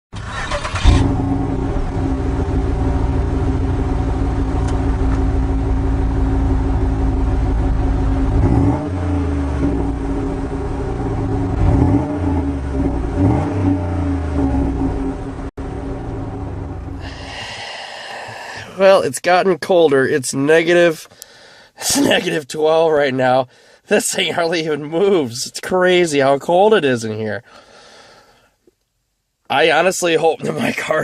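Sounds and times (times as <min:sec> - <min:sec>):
car engine starting and running: 0:00.1 - 0:18.9.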